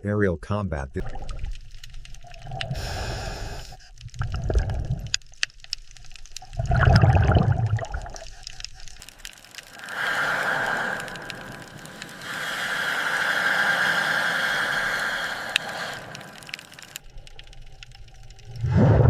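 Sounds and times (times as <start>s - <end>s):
small clicks: 1.0s - 6.7s, 7.9s - 18.7s
underwater water surges: 6.4s - 8.4s, 9.0s - 19.0s.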